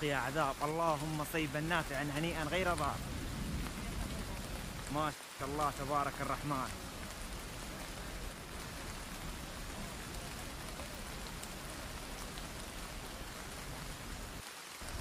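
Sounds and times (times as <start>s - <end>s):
heavy rain on stone paving: 0.0s - 15.0s.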